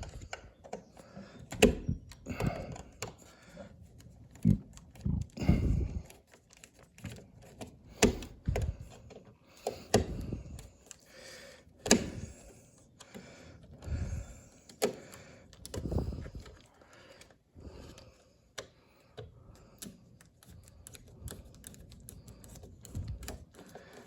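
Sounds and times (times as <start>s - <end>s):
sharp clicks and knocks: 0.0s - 5.4s, 6.0s - 11.0s.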